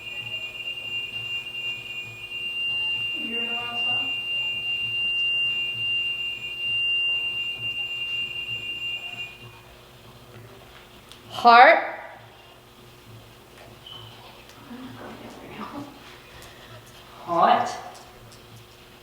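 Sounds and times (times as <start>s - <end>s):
high-pitched electronic tone: 0.0s - 9.6s.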